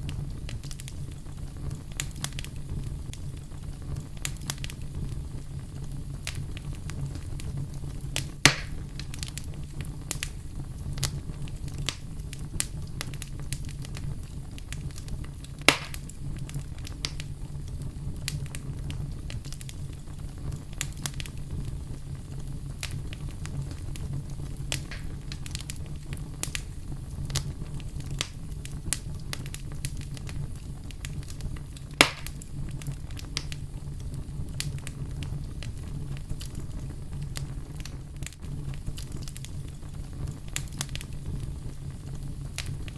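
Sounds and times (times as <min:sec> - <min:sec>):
sharp pops of fire: 0:00.0 - 0:42.9
wood fire crackling: 0:00.0 - 0:42.9.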